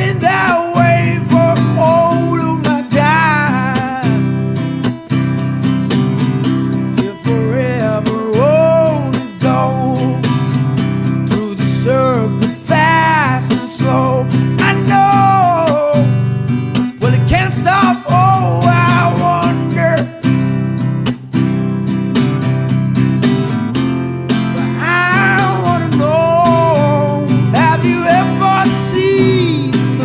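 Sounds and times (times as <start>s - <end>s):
strummed acoustic guitar: 0.0s - 30.0s.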